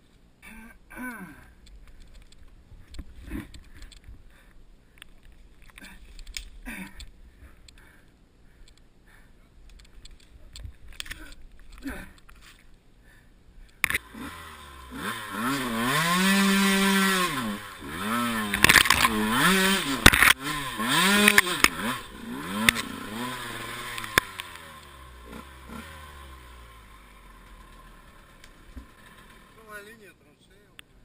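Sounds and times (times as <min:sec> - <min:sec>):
motorcycle engine revving: 0:13.8 - 0:29.9.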